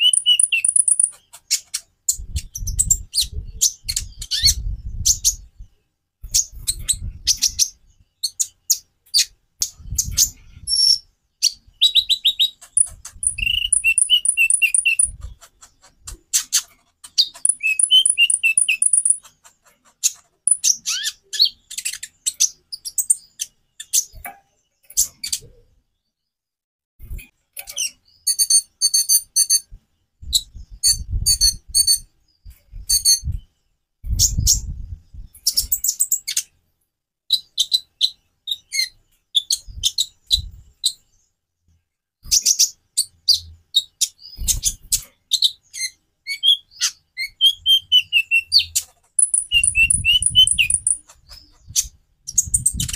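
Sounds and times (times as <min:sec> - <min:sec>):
sunbird singing chirps and trills: 0:00.0 - 0:05.7, 0:06.3 - 0:16.5, 0:17.1 - 0:19.3, 0:42.4 - 0:52.9.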